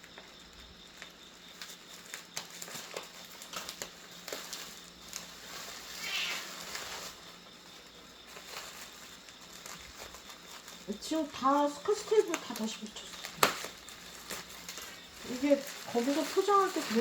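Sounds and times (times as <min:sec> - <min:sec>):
packaging rustling: 0:01.0 - 0:17.0
scratchy hissy burst: 0:05.4 - 0:07.1.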